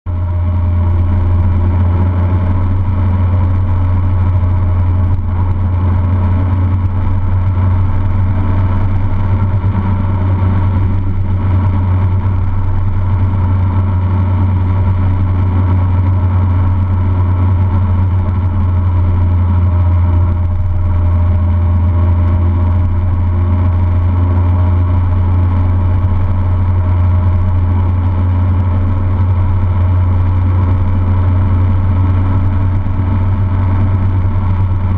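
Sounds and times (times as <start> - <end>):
car engine droning: 0.1 - 34.9
road noise: 0.1 - 34.9.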